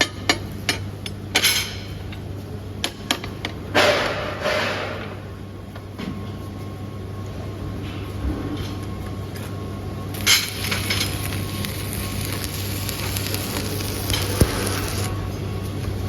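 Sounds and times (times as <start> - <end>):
machine hum: 9.7 - 16.0
steel parts clanking: 10.2 - 15.1.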